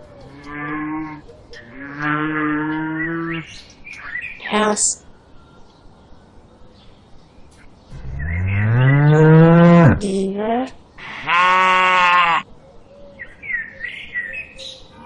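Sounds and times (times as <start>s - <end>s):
cow mooing: 8.0s - 10.0s, 11.0s - 12.4s.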